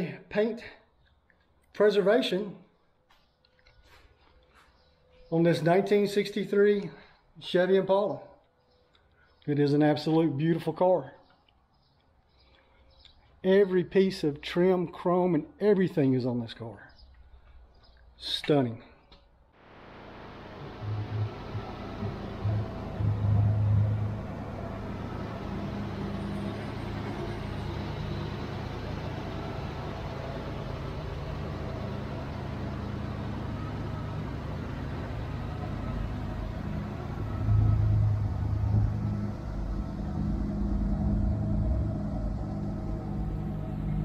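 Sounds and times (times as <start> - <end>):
car engine idling: 19.6 - 44.0.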